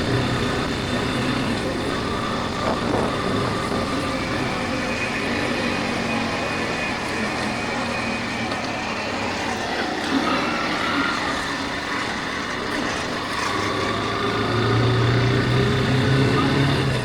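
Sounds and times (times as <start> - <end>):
wind noise on microphone: 0.0 - 8.1
motorcycle engine running: 0.0 - 9.7, 11.1 - 17.0.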